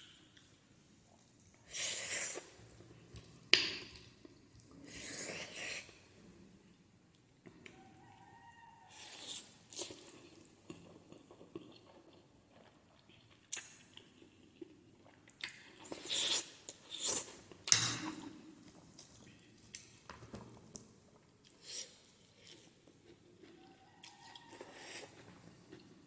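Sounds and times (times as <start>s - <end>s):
chewing: 9.0s - 17.5s, 20.7s - 26.0s.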